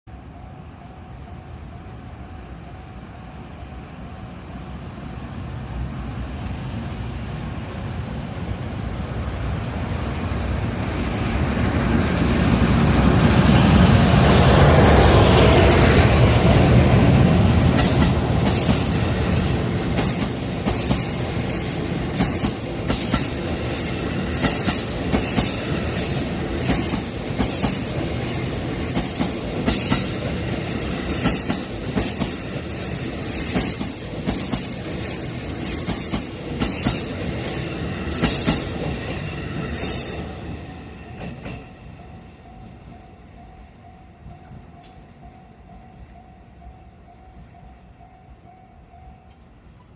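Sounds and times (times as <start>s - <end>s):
train rumbling: 0.1s - 49.9s
wheels squealing on rails: 11.8s - 42.7s.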